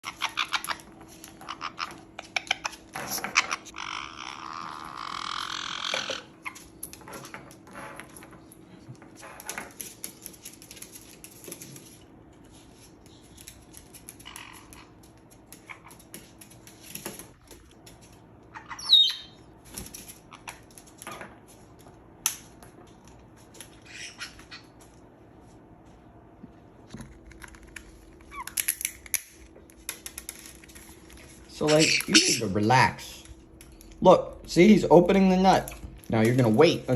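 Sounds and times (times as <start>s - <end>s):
lovebirds squawking and chirping: 0.0s - 6.6s, 18.5s - 19.4s, 23.8s - 24.8s, 31.6s - 32.6s.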